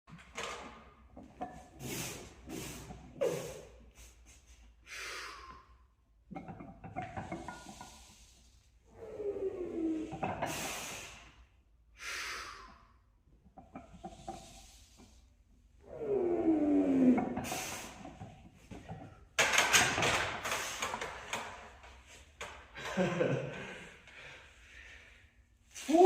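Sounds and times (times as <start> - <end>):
sharp breaths hissed out: 1.8 - 5.8, 10.5 - 11.4, 12.0 - 12.9, 17.4 - 18.2.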